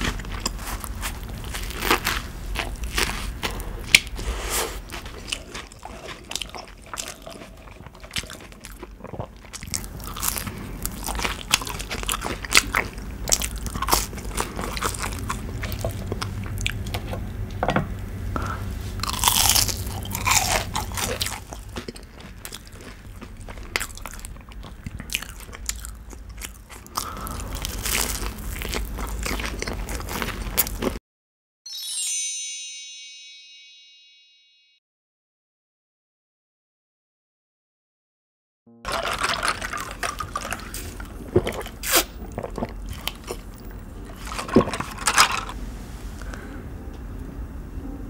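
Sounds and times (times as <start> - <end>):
crisp crunches of fried shrimp: 0.0 - 3.6
chewing a burger: 0.0 - 17.0, 19.0 - 31.0, 38.9 - 44.7.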